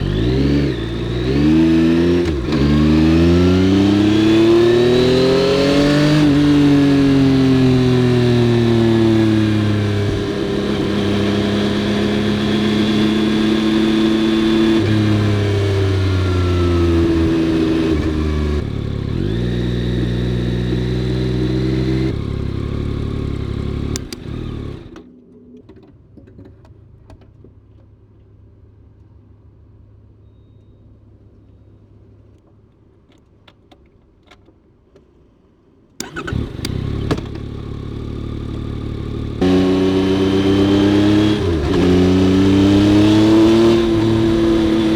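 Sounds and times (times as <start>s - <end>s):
motorcycle engine revving: 0.0s - 25.1s, 36.0s - 44.9s.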